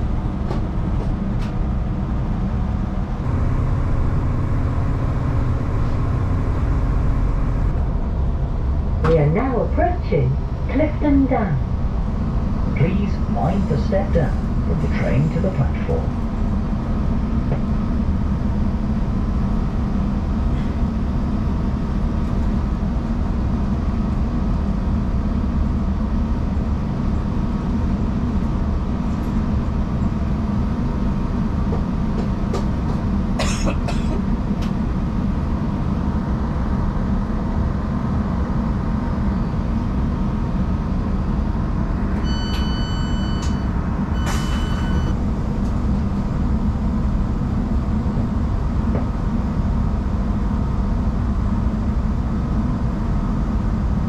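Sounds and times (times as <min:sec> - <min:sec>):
train rumbling inside carriage: 0:00.0 - 0:54.0
electronic beep: 0:42.2 - 0:45.2.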